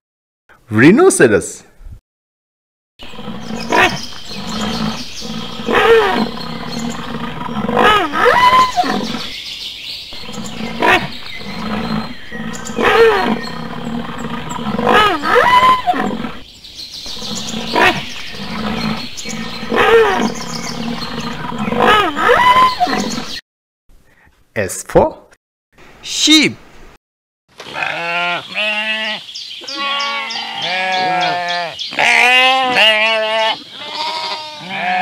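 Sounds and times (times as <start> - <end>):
rhinoceros calls: 3.1 - 9.3, 10.2 - 16.4, 17.1 - 23.4, 27.8 - 35.0.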